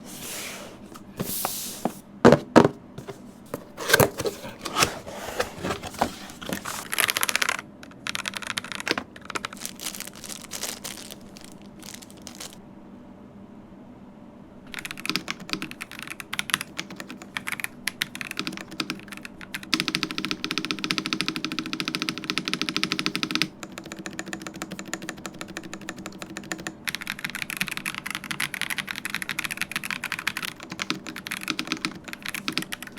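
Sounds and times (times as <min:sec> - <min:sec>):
clicks and knocks of handling: 0:02.3 - 0:07.6, 0:08.8 - 0:09.2
packaging rustling: 0:02.6 - 0:07.6, 0:08.4 - 0:12.6
rapid keyboard typing: 0:03.0 - 0:12.6, 0:14.7 - 0:32.9.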